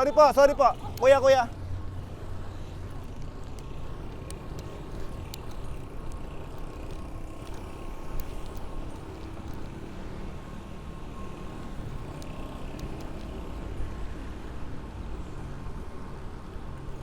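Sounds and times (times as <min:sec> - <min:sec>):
road and traffic noise: 0:00.0 - 0:17.0
faint clicks: 0:03.0 - 0:09.7.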